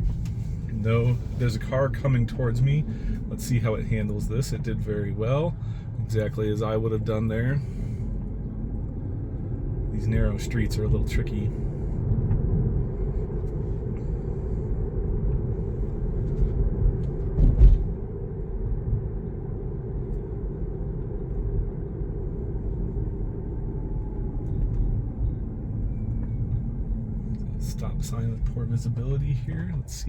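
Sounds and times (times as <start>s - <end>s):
road and tyre rumble in car: 0.0s - 30.0s
thump from road bump: 17.2s - 18.0s.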